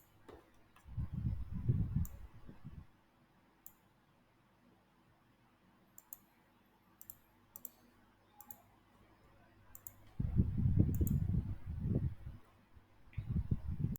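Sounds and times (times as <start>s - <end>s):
computer mouse clicks: 2.0s - 2.3s, 3.6s - 3.8s, 6.0s - 6.3s, 7.0s - 8.7s, 9.7s - 10.2s, 10.8s - 11.4s.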